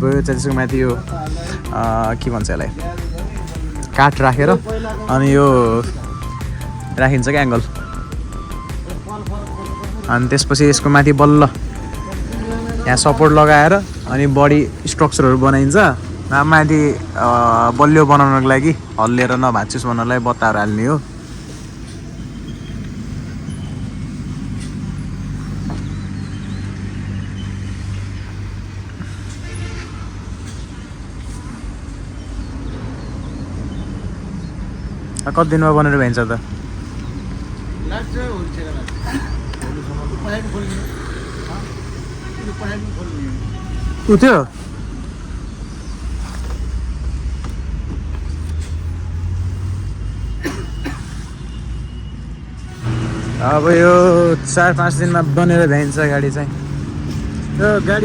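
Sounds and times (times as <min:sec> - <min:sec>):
engine running with low hum: 0:00.0 - 0:19.3, 0:20.6 - 0:33.0, 0:33.6 - 0:44.1, 0:52.7 - 0:58.0
high-pitched squeaks: 0:20.7 - 0:32.6.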